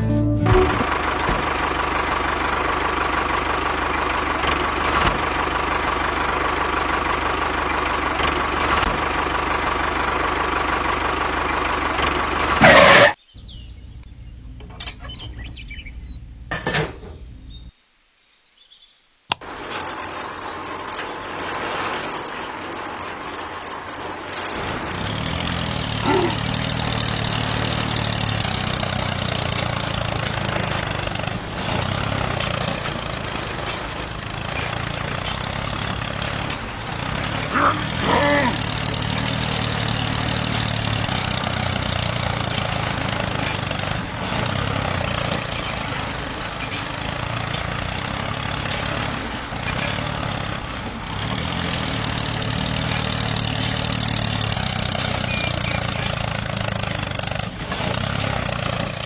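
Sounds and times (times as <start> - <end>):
disc harrow dragging through sand: 0.8 - 13.6, 19.4 - 59.0
toy tractor motors whining: 19.3 - 59.0.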